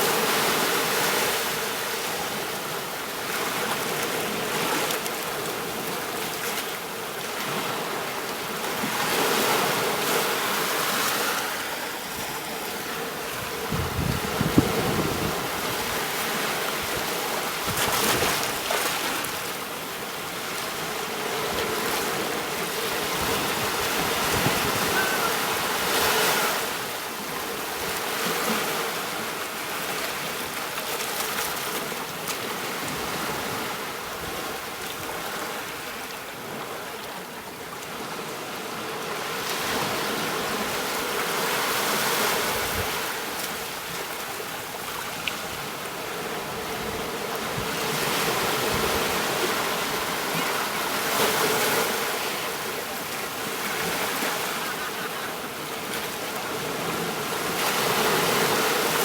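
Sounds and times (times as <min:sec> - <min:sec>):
waves breaking: 0:00.0 - 0:37.0, 0:38.0 - 0:59.0
ocean surf rushing: 0:20.5 - 0:29.1.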